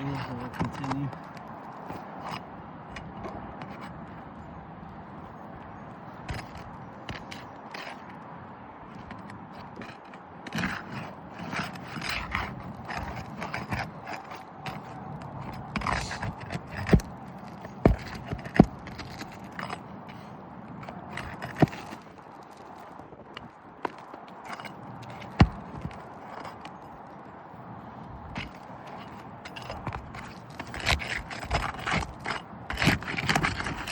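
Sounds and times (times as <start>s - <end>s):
tools scraping roof shingles: 0.0s - 33.9s.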